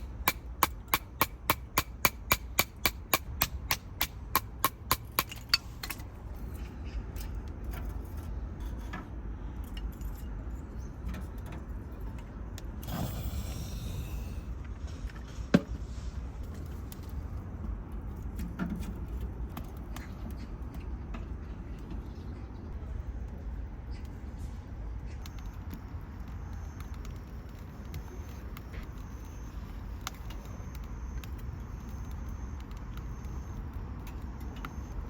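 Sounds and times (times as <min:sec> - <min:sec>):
low steady rumble: 0:05.1 - 0:25.2
short hiss: 0:12.9 - 0:14.5.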